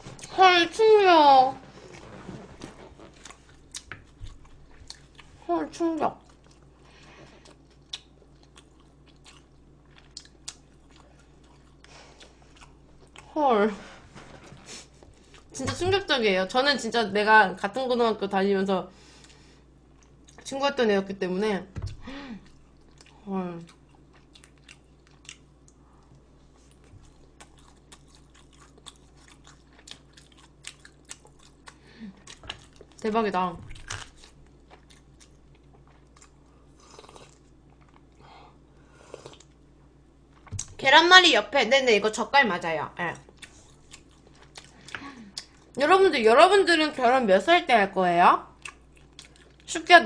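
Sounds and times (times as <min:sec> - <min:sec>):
chewing and biting food: 0:03.0 - 0:05.4, 0:07.3 - 0:13.3, 0:22.5 - 0:33.0, 0:33.6 - 0:38.2, 0:43.2 - 0:45.8, 0:48.6 - 0:49.7.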